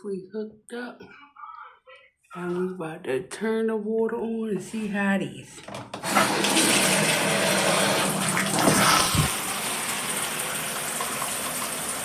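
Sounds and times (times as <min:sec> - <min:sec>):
water spraying from shower head: 0:06.1 - 0:10.2.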